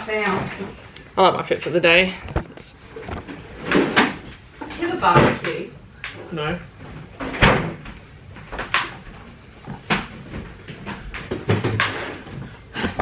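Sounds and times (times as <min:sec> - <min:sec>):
household knocks and clunks: 0:02.2 - 0:06.2, 0:06.8 - 0:13.0.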